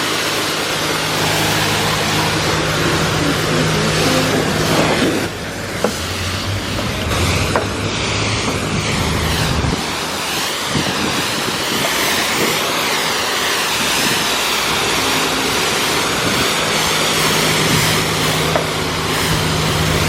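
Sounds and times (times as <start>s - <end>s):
low hum: 0.0s - 20.0s
pressure washer spraying car: 0.0s - 20.0s.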